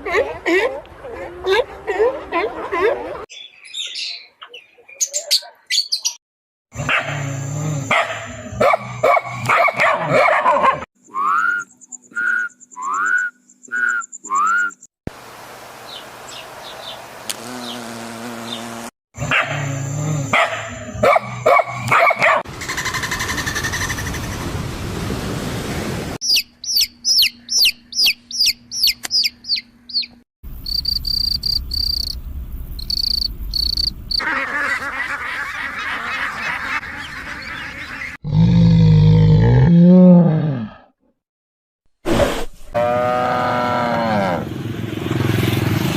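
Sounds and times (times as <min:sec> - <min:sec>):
high-pitched chirps: 0:26.2 - 0:32.2, 0:32.8 - 0:34.0.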